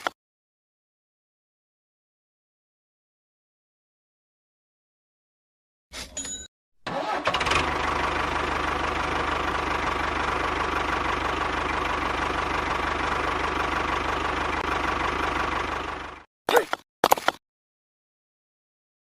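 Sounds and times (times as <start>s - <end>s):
engine idling with knocking clatter: 6.9s - 16.3s.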